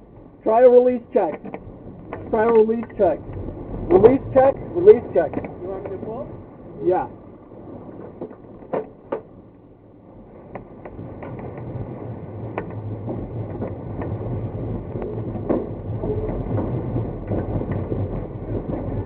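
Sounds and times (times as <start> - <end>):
glider cockpit rumble: 0.0 - 19.0.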